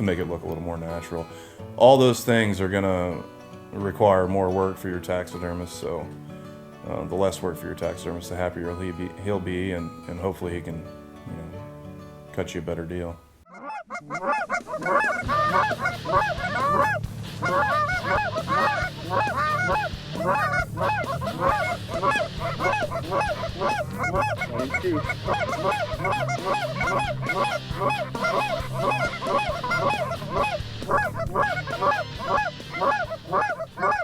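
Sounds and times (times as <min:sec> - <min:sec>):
geese honking: 0:13.5 - 0:34.0.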